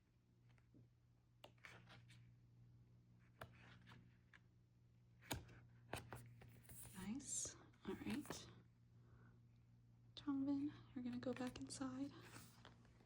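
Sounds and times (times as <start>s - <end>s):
faint clicks and rustles of pages: 0.3s - 2.4s, 3.0s - 8.6s, 10.9s - 13.0s.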